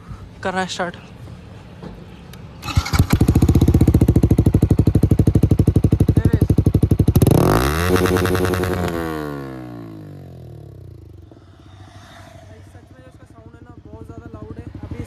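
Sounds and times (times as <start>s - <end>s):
motorcycle engine starting and revving: 2.6s - 11.8s, 12.6s - 15.0s.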